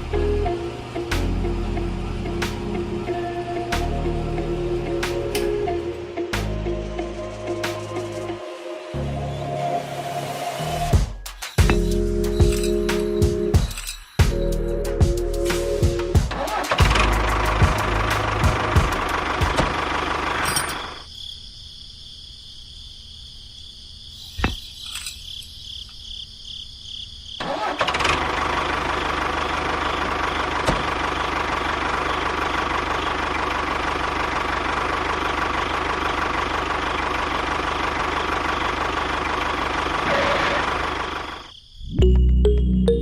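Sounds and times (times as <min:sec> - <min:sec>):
mini tractor motor running: 0:16.4 - 0:21.0, 0:27.4 - 0:41.5.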